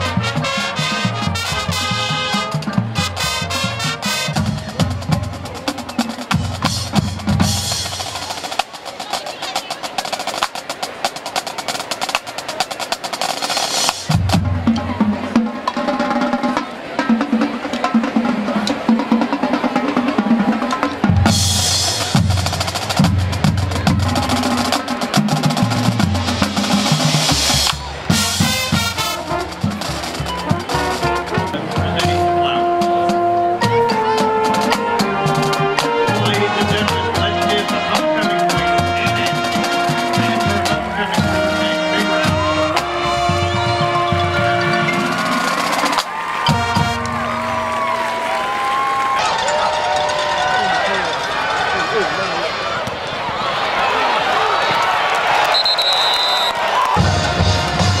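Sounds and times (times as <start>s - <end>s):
snare drum rolls: 0.0s - 49.2s
bass drum beats: 1.1s - 8.3s.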